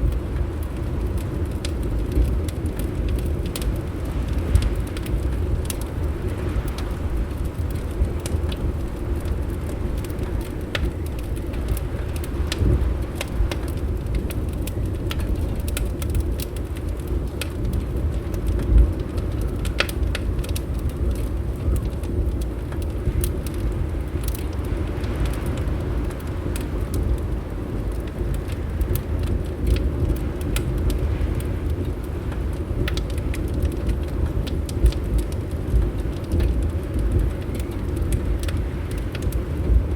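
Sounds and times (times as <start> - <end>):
fireplace crackling: 0.0 - 39.9
low rumble: 0.0 - 39.9.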